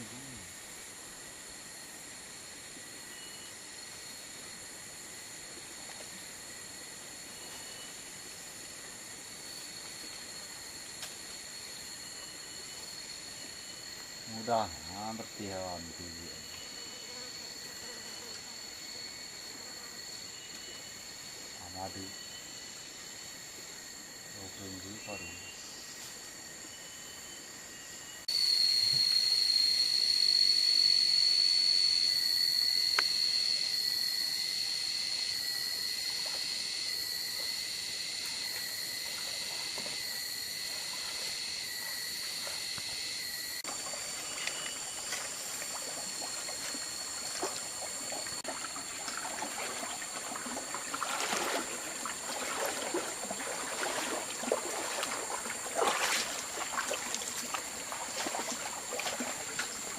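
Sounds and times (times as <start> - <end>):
high-pitched insect drone: 6.1 - 59.9
stream trickling and splashing: 34.8 - 59.9.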